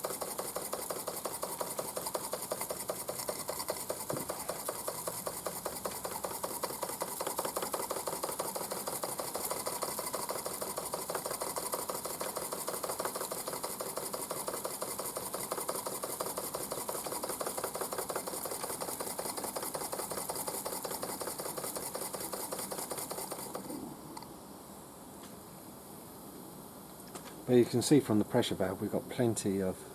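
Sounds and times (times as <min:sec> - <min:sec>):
model steam engine clattering: 0:00.0 - 0:23.7.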